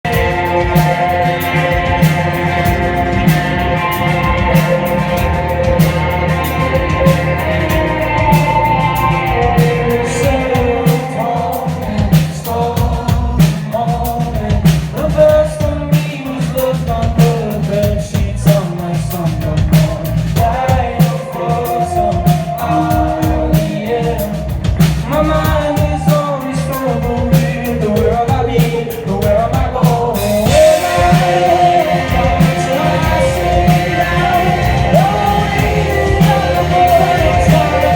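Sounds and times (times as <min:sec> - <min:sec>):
live rock band playing: 0:00.0 - 0:37.9
man singing lead vocal: 0:00.0 - 0:37.9
cymbals hissing: 0:00.1 - 0:12.5, 0:30.0 - 0:37.9.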